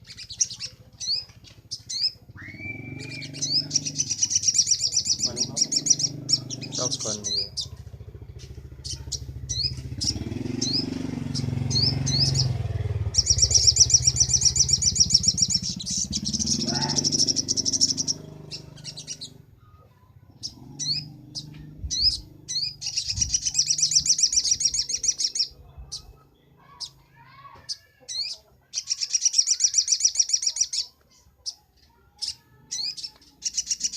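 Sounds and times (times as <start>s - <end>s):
bird chirping: 0.0s - 33.9s
bird trilling: 0.0s - 33.9s.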